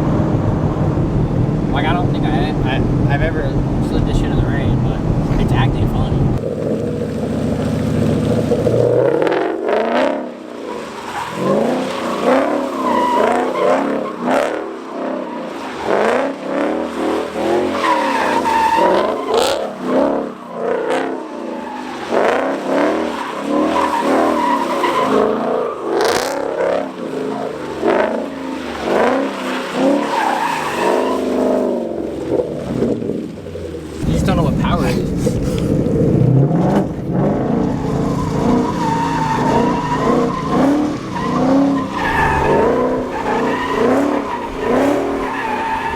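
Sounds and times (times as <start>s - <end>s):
car engine revving: 0.0s - 45.9s
tyres squealing: 17.6s - 20.0s, 37.5s - 45.9s.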